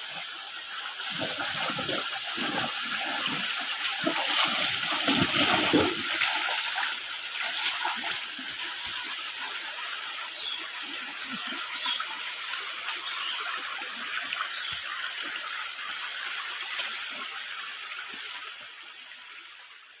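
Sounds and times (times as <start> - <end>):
stream over rocks: 0.0 - 20.0
water splashing: 1.0 - 9.2.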